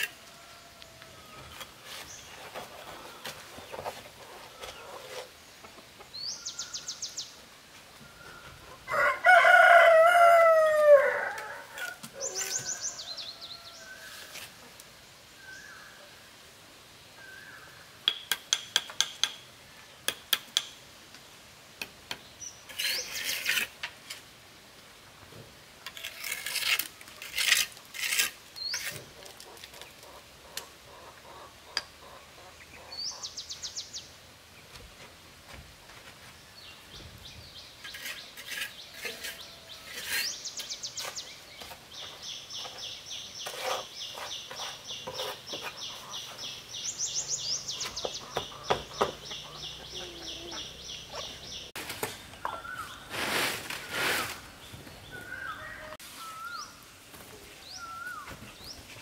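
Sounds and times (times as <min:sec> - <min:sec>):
rough scraping strokes: 0:01.2 - 0:05.4, 0:22.7 - 0:24.3, 0:25.8 - 0:30.1, 0:37.8 - 0:47.8, 0:50.8 - 0:54.8
bird chirps: 0:36.9 - 0:51.8.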